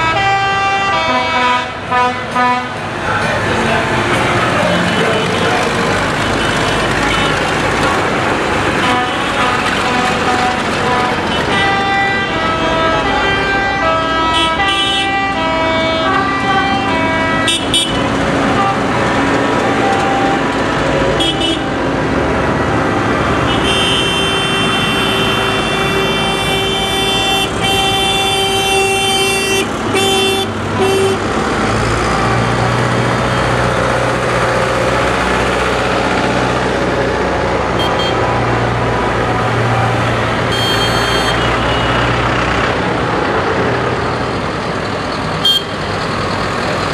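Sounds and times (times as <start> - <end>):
long horn blast: 0.0 - 2.8, 8.8 - 20.4, 21.1 - 21.8, 23.4 - 31.3
traffic noise: 0.0 - 46.9
tractor diesel engine running: 2.7 - 46.9
crowd noise: 2.8 - 11.5.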